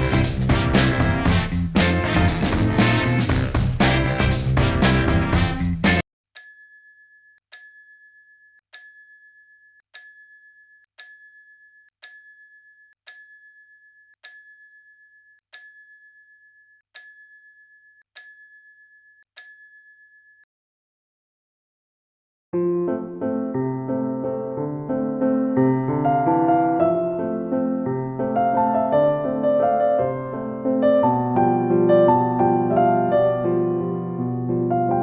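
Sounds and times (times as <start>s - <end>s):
music: 0.0s - 6.0s, 22.6s - 35.0s
small bell ding: 6.4s - 20.4s.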